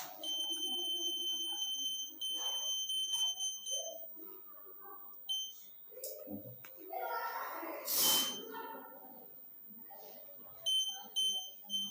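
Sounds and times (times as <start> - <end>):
high-pitched alarm buzzer: 0.2 - 4.0, 8.0 - 8.5
short beep: 8.0 - 8.5.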